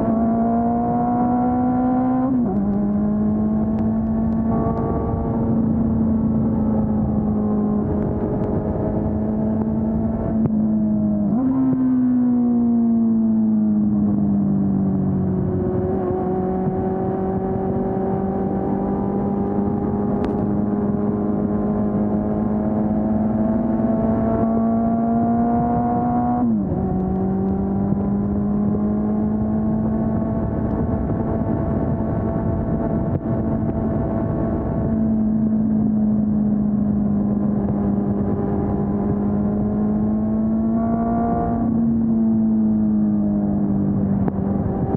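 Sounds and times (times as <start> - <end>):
motorcycle engine running: 2.6 - 11.2.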